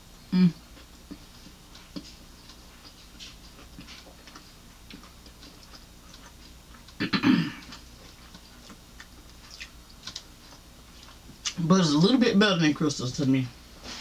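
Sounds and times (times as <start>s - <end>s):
loud noise from eater: 0.0s - 1.2s, 2.0s - 10.8s
chewing chicken wings: 0.6s - 11.6s.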